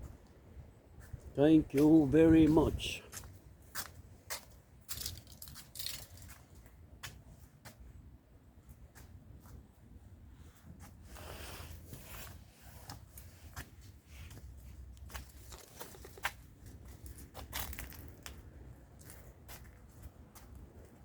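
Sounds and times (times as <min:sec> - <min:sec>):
wind buffeting microphone: 0:00.0 - 0:03.2
rustling and crackling: 0:03.8 - 0:07.3, 0:10.6 - 0:21.0.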